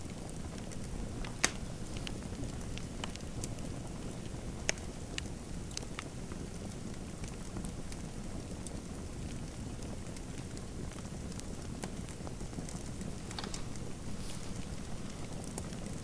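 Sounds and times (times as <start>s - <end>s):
fireplace fire crackling: 0.0s - 16.0s.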